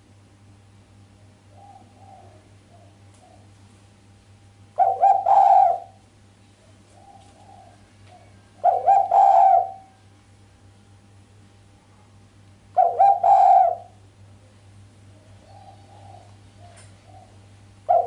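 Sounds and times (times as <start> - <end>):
dove cooing: 1.4 - 3.5, 4.8 - 6.0, 6.6 - 10.0, 12.8 - 14.0, 15.1 - 18.0.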